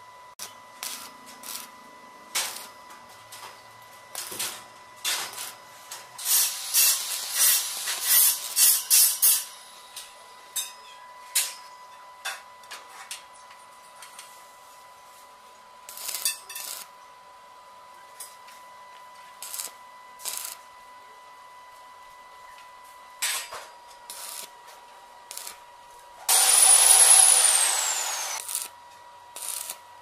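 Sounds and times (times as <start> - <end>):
welding arc crackling: 0.4 - 2.8, 4.1 - 4.5, 6.2 - 9.4, 15.8 - 16.9, 19.4 - 20.6, 24.1 - 24.5, 25.3 - 25.6, 26.3 - 28.8, 29.4 - 29.8.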